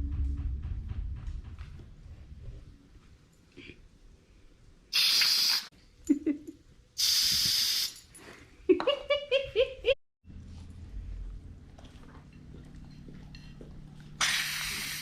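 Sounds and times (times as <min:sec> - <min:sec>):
aerosol whipped cream can hissing: 0:05.0 - 0:05.7, 0:07.0 - 0:08.0, 0:14.2 - 0:15.0.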